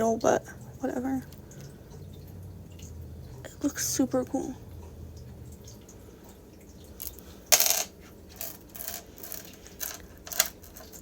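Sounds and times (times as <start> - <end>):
crystals clicking together: 7.0 - 11.0.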